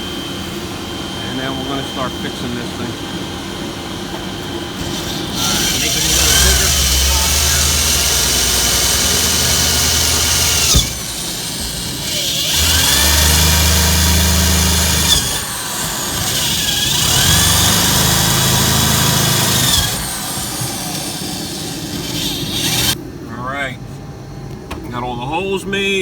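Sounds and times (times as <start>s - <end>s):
electric drill drilling steel: 4.7s - 23.0s.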